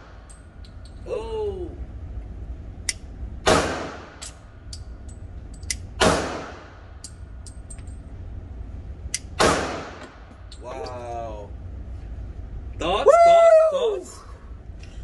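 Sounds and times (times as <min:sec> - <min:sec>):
pistol shots echoing: 0:03.4 - 0:04.2, 0:06.0 - 0:06.8, 0:09.4 - 0:10.2.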